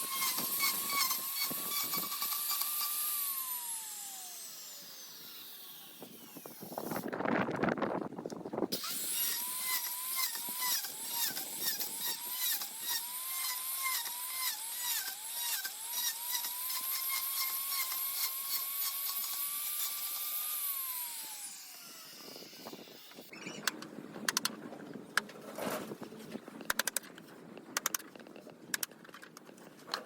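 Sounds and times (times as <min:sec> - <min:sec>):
power tool cutting wood: 0:00.0 - 0:07.1, 0:08.7 - 0:23.7.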